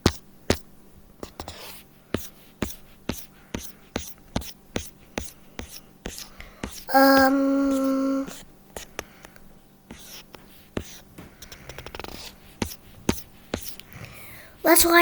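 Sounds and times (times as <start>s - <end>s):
faint steady hum: 5.2s - 10.1s.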